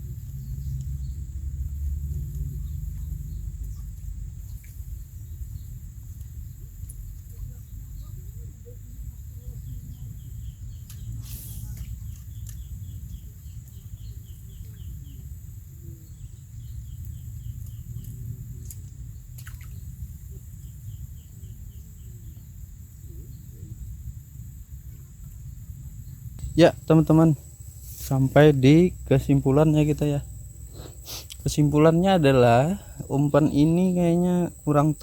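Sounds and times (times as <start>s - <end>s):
high insect drone: 20.9s - 35.0s
bird chirping: 26.0s - 35.0s.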